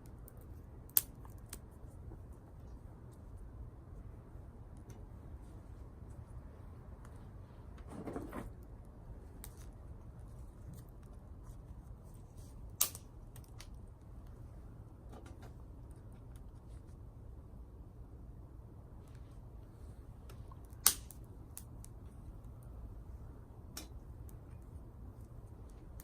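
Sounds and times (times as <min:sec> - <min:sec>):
sharp snap: 0:12.8 - 0:13.1, 0:20.7 - 0:21.7.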